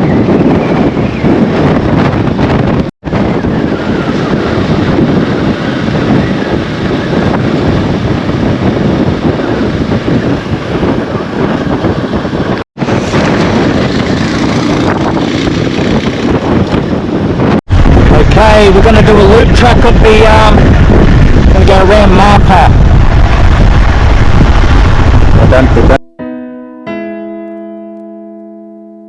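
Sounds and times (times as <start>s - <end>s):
road noise: 0.0s - 26.0s
wind buffeting microphone: 0.0s - 26.0s
motorbike engine: 12.9s - 17.2s.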